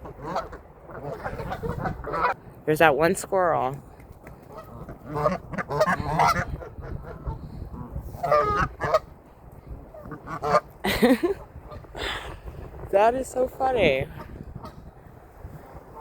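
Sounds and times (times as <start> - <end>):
geese honking: 0.0 - 2.4, 4.4 - 9.2, 9.8 - 10.7, 15.8 - 16.0.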